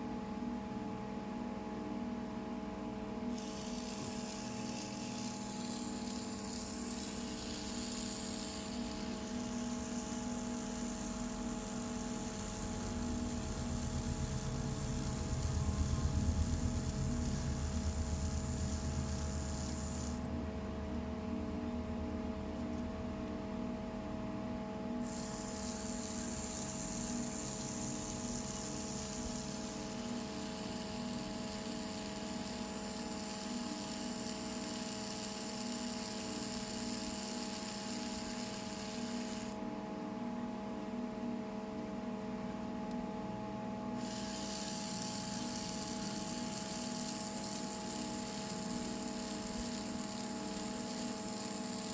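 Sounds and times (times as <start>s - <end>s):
small electric motor whine: 3.2s - 21.3s, 24.9s - 39.7s, 43.8s - 51.9s.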